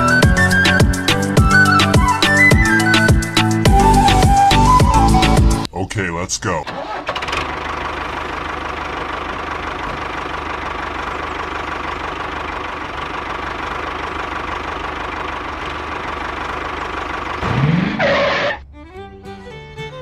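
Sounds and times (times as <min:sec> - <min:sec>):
tractor engine idling: 0:06.6 - 0:19.9.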